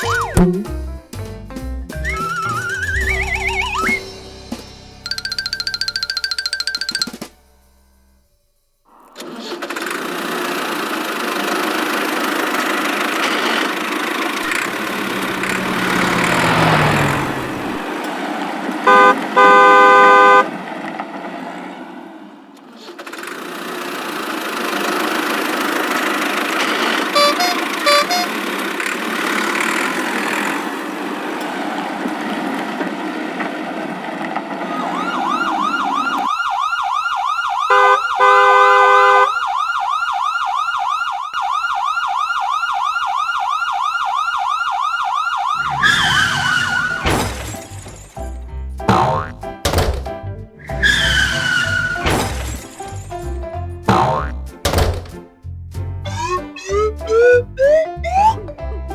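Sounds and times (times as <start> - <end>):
fast-warbling siren: 0.0 - 0.6, 2.1 - 4.0, 34.6 - 38.3, 39.3 - 47.0, 56.2 - 58.4
cartoon engine running: 0.0 - 0.8, 2.1 - 4.0, 5.1 - 7.3, 27.2 - 28.4, 56.1 - 58.6
short horn honks: 27.2 - 28.4.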